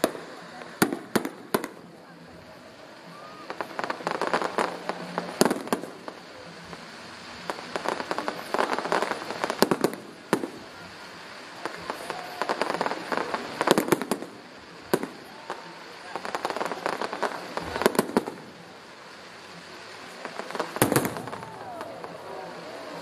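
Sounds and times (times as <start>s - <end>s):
fireworks popping crackle: 0.0s - 23.0s
firework sharp bang: 13.3s - 18.6s, 20.2s - 22.4s.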